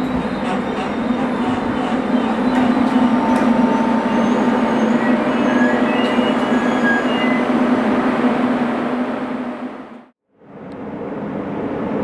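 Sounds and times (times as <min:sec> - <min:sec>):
train rumbling past: 0:00.0 - 0:12.0
faint high wheel squeaks: 0:00.2 - 0:07.4.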